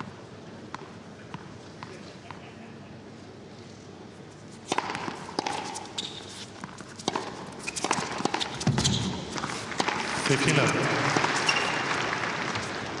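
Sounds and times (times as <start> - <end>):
tennis ball bounces: 0.7 - 2.4, 4.6 - 6.0, 6.6 - 12.8
tennis racket strikes: 4.6 - 11.8.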